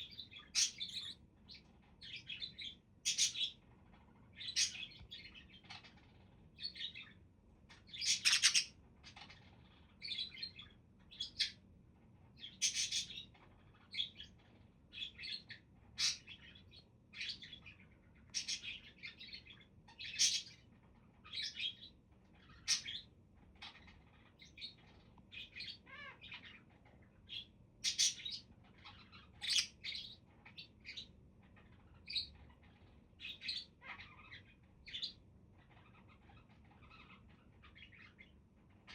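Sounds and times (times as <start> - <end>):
budgerigars chirping: 0.0 - 11.6, 12.4 - 38.9.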